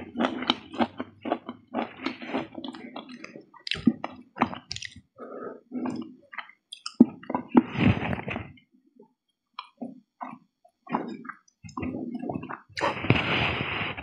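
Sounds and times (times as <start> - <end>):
wet chewing: 0.0 - 8.5, 9.6 - 13.1
mouth clicks: 2.1 - 5.0, 5.8 - 7.4.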